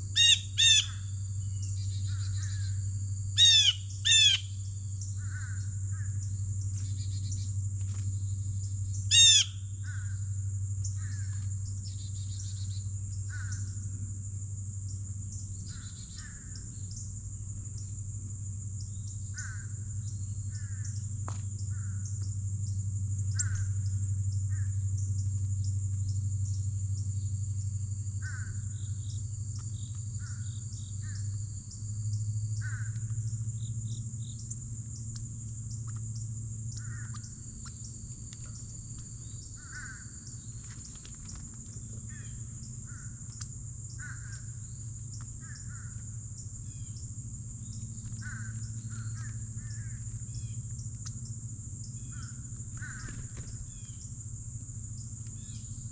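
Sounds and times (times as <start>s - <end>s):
high-pitched insect drone: 0.0s - 55.9s
low steady hum: 0.0s - 55.9s
crows cawing: 5.2s - 6.2s, 9.1s - 10.3s, 11.0s - 11.4s, 13.3s - 13.8s, 19.3s - 19.9s, 20.5s - 21.0s, 28.2s - 28.8s, 32.6s - 33.2s, 36.8s - 37.3s, 39.6s - 40.3s, 44.0s - 44.6s, 45.4s - 46.0s, 48.2s - 50.0s, 52.1s - 53.5s.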